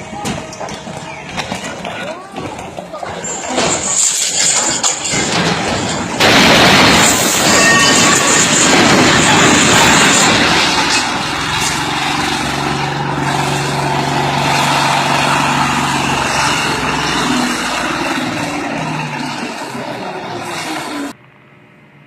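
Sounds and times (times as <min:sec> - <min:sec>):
road and wind noise: 0:00.0 - 0:22.0
vehicle engine running: 0:08.2 - 0:21.2.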